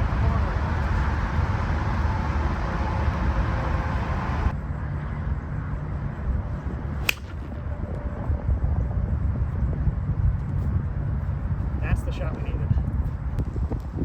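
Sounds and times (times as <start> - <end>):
wind buffeting microphone: 0.0 - 14.0
golf club striking ball: 7.0 - 7.5.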